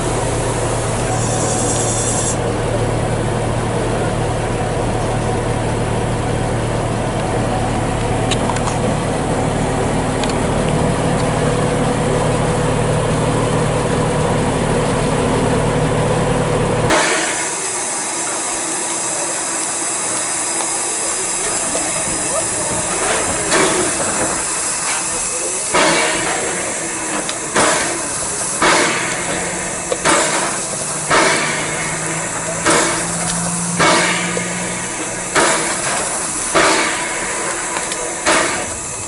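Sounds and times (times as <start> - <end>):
train engine drone: 0.0 - 39.0
thin hiss: 1.0 - 2.4.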